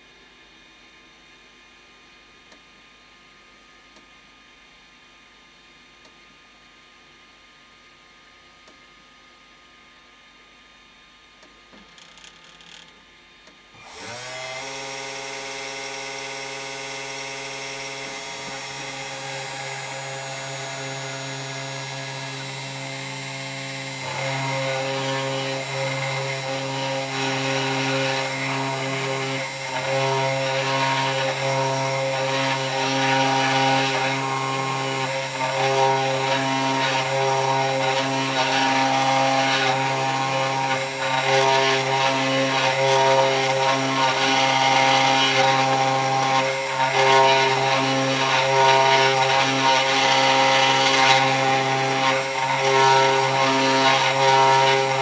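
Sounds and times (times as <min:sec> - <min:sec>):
router spindle motor: 0:13.8 - 0:55.0.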